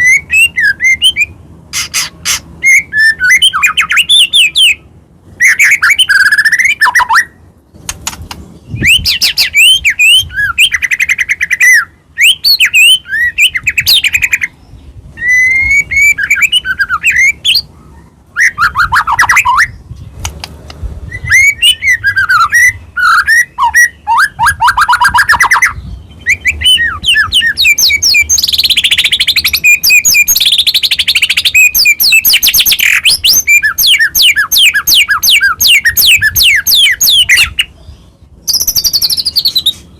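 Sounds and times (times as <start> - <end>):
songbird singing: 0.0 - 39.9
bird harsh chattering: 1.7 - 4.6.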